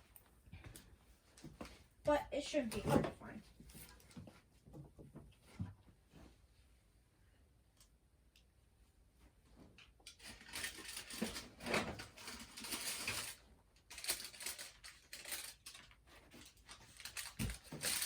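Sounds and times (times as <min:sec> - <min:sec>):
small objects clinking: 0:10.1 - 0:18.0.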